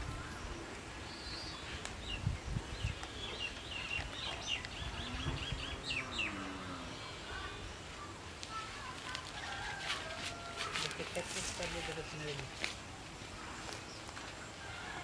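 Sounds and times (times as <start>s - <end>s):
bird chirping: 0.2s - 8.0s.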